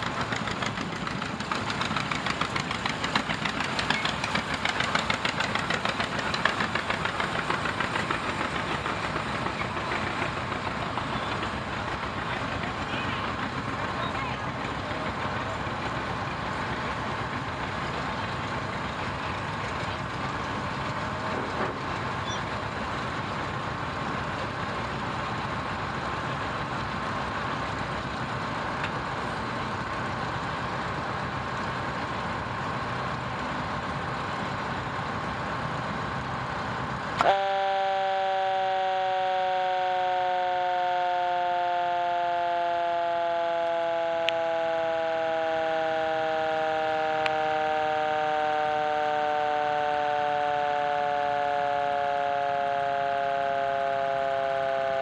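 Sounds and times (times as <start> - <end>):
fire truck engine and road rumble: 0.0 - 55.0
siren with falling pitch: 37.6 - 55.0.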